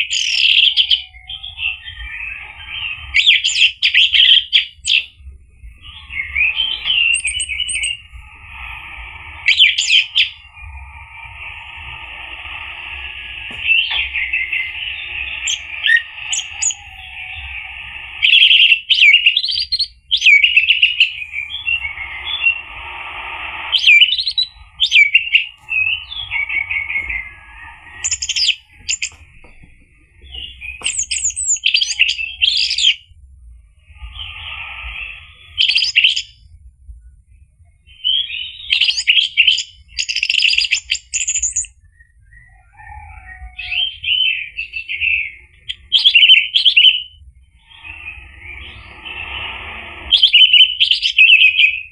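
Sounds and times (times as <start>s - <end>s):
steady noisy background: 0.0s - 51.9s.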